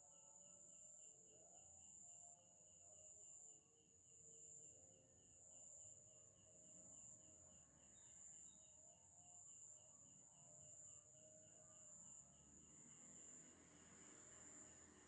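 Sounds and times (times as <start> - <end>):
cricket chirping: 0.0 - 15.0
insect trill: 4.6 - 15.0.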